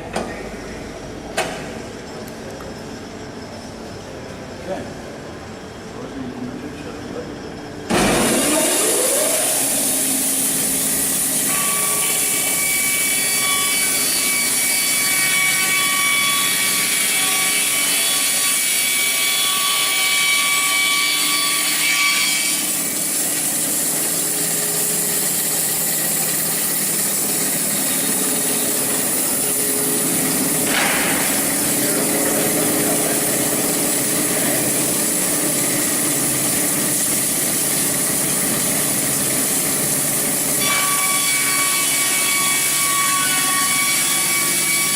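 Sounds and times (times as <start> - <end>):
bandsaw blade sawing log: 7.9 - 44.9.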